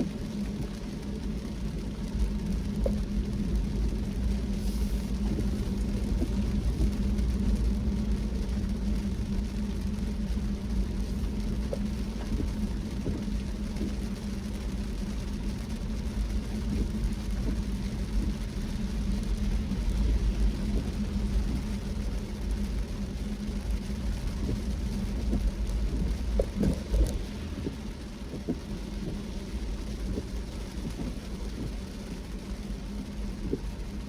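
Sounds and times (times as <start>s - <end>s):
car engine and tyres rumbling: 0.0s - 34.0s
rain: 0.0s - 34.0s.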